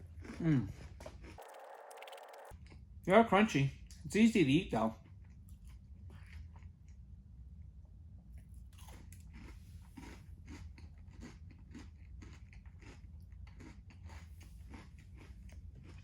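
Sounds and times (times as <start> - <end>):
chewing crunchy granola bar: 0.0 - 3.0, 4.9 - 7.1, 8.4 - 16.0.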